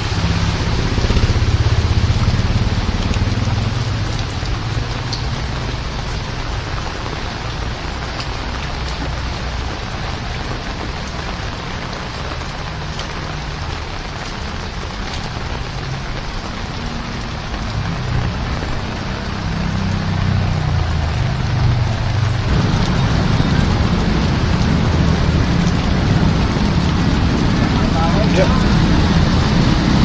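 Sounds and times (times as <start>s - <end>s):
heavy rain falling: 0.0s - 30.0s
raindrop ticks: 0.0s - 30.0s
low rumble: 20.5s - 30.0s.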